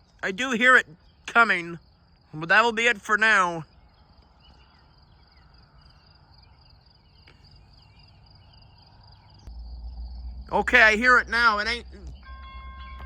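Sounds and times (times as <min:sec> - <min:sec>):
crickets trilling: 0:00.0 - 0:13.0
low rumble: 0:08.7 - 0:12.2.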